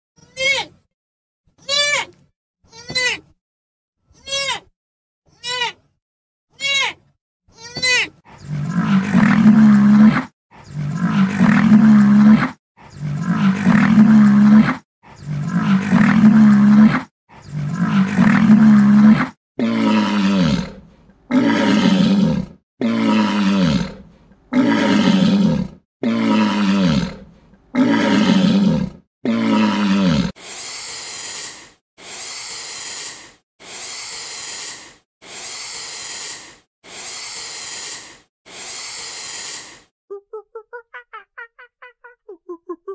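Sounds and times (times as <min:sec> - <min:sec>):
deep drawn-out animal calls: 0:08.2 - 0:30.4
hissing animal calls: 0:08.3 - 0:24.0, 0:27.8 - 0:39.9.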